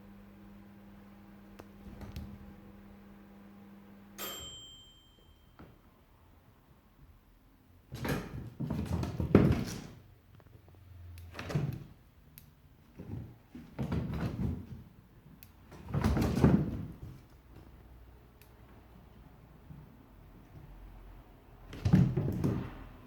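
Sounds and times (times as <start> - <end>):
pet scrambling and thumping on floor: 7.9 - 10.0, 12.9 - 14.9, 15.7 - 17.7, 21.7 - 22.9.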